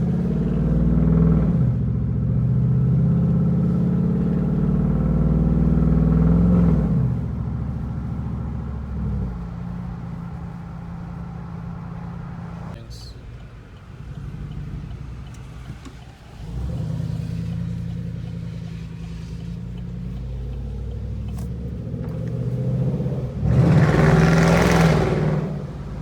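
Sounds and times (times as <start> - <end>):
loud vee eight exhaust: 16.4 - 26.0.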